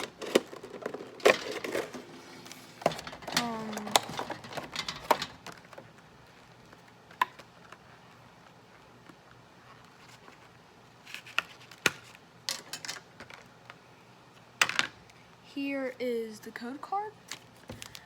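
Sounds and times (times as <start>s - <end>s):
card tin clicking and rattling: 0.0s - 8.0s.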